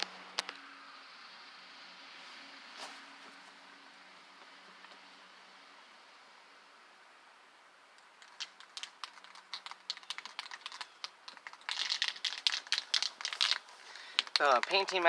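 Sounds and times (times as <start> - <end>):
spray paint cans crinkling and clicking: 8.0 - 15.0.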